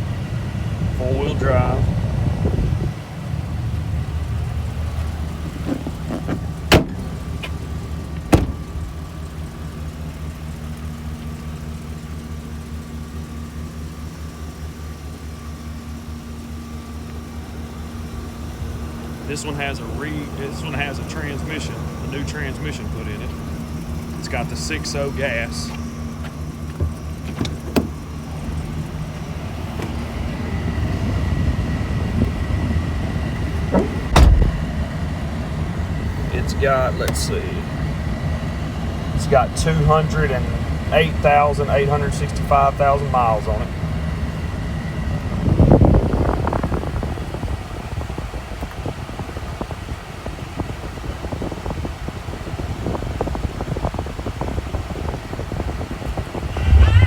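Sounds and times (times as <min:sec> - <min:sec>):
air-conditioning blower running: 0:00.0 - 0:57.0
truck engine idling: 0:00.0 - 0:57.0
whoosh: 0:56.4 - 0:57.0.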